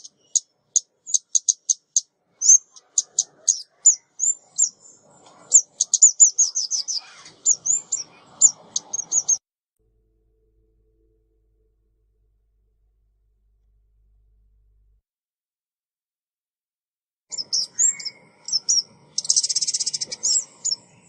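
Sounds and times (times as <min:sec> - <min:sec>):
bird chip notes and tweets: 0:00.0 - 0:09.4, 0:17.3 - 0:21.0.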